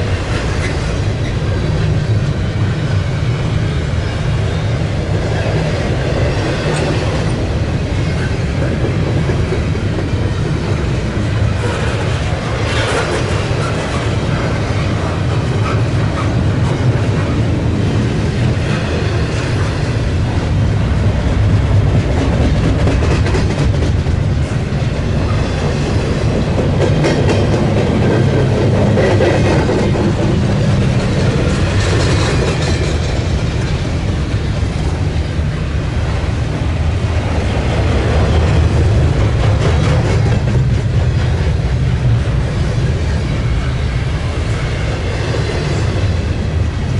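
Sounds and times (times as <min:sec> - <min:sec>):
freight train rumbling: 0:00.0 - 0:46.9
wheels clacking over rail joints: 0:05.0 - 0:35.2, 0:37.2 - 0:46.9.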